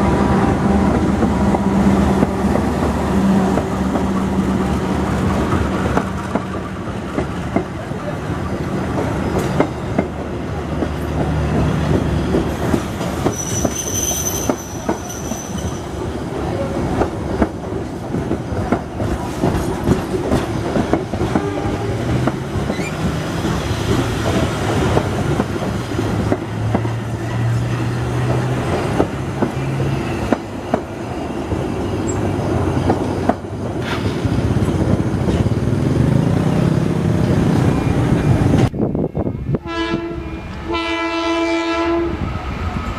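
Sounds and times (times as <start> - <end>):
train rumble: 0.0 - 42.9
high wheel squeal: 13.2 - 16.0, 22.7 - 23.1.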